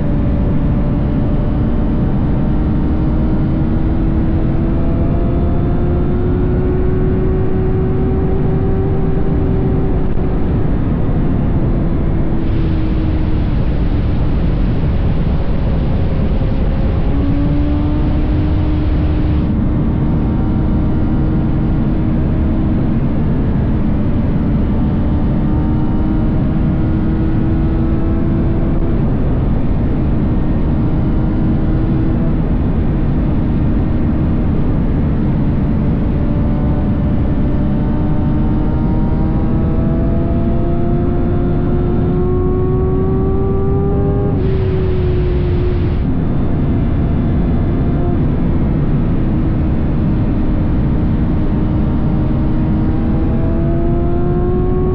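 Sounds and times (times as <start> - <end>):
motorcycle engine cruising: 0.0 - 54.9
wind noise on microphone: 0.0 - 54.9.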